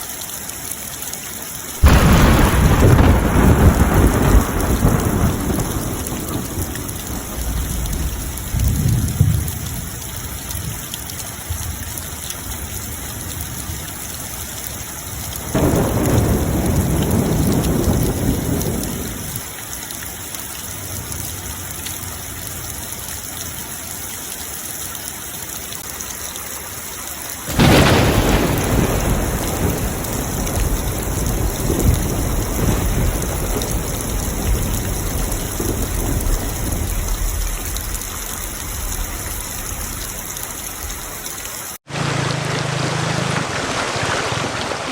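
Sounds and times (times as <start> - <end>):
steady rain: 0.0 - 44.9
thunder rumbling: 1.8 - 14.0, 15.1 - 19.4, 27.5 - 41.3.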